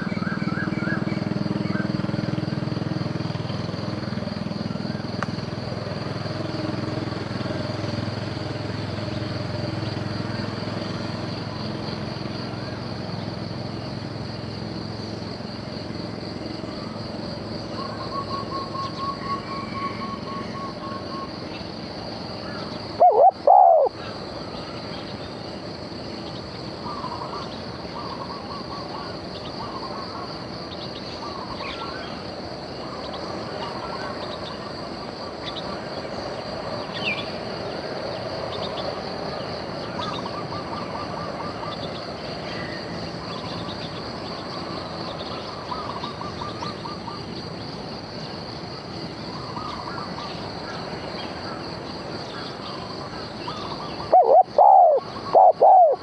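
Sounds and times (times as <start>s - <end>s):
high insect drone: 0.0s - 56.0s
motor hum: 22.2s - 24.1s
bird notes: 23.0s - 23.9s, 54.0s - 56.0s.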